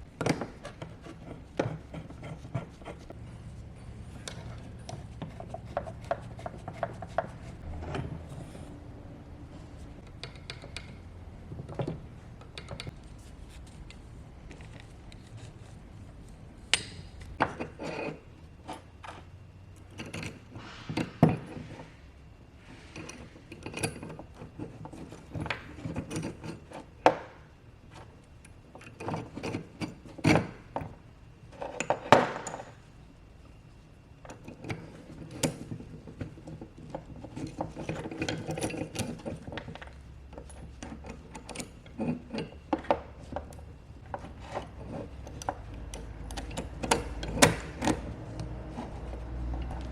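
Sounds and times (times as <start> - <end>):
hand tools clicking and knocking: 34.3 - 49.9.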